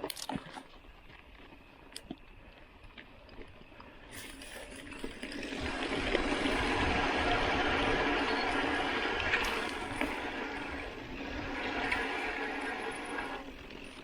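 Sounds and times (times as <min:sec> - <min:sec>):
bike clicks and rattles: 0:00.0 - 0:14.0
tyres and wind rushing: 0:05.4 - 0:14.0.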